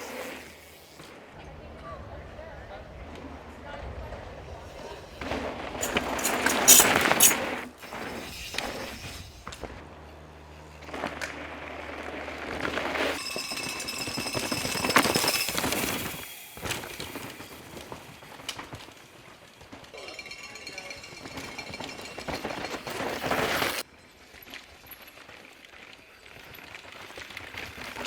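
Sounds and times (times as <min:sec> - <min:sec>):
bike tyres clattering over rock: 0:04.7 - 0:09.8, 0:10.9 - 0:28.0
bike chains and frames rattling: 0:04.7 - 0:28.0.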